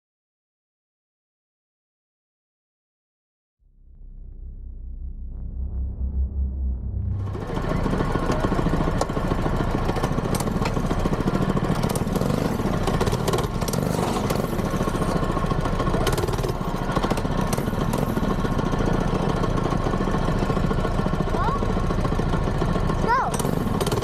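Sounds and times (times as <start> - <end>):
mini-bike engine running: 7.3 - 24.0.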